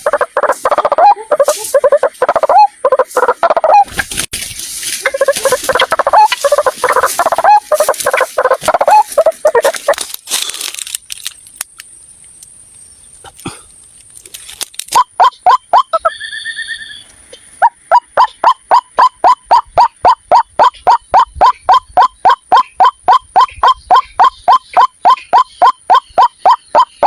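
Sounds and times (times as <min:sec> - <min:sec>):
waterhen calling harsh notes: 0:00.0 - 0:10.0, 0:15.0 - 0:17.0, 0:17.6 - 0:27.0
scattered clicks: 0:09.7 - 0:12.6.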